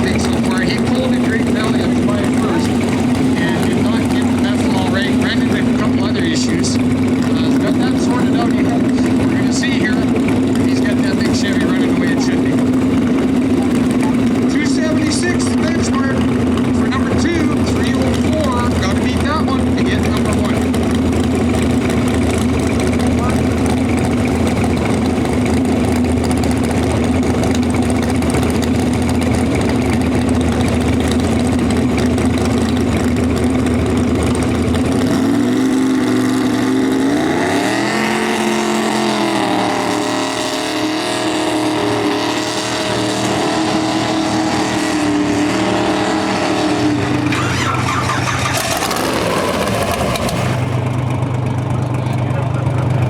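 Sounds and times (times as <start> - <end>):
tractor engine idling and revving: 0.0 - 53.0.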